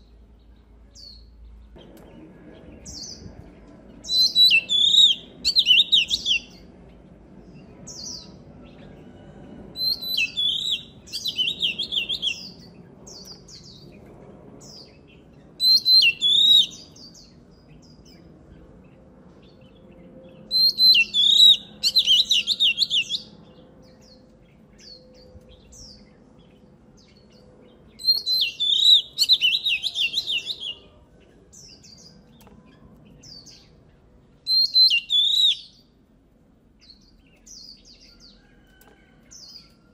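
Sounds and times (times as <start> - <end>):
bird singing whistled phrases: 4.1 - 6.6, 9.8 - 12.6, 15.6 - 17.2, 20.5 - 23.3, 28.0 - 30.9, 34.5 - 35.8.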